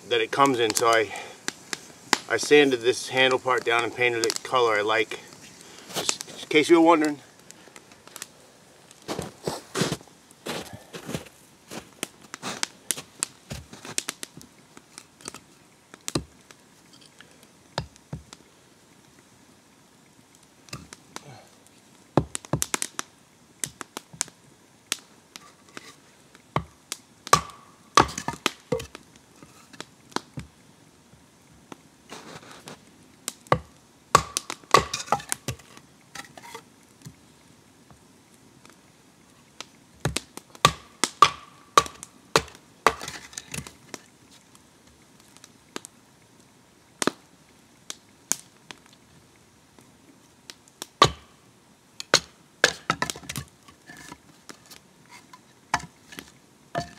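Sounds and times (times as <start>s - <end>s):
firewood cracking and knocking: 3.6s - 8.3s, 8.9s - 18.4s, 20.7s - 21.0s, 22.1s - 30.6s, 32.1s - 37.2s, 40.0s - 44.1s, 50.5s - 51.4s, 52.0s - 56.9s.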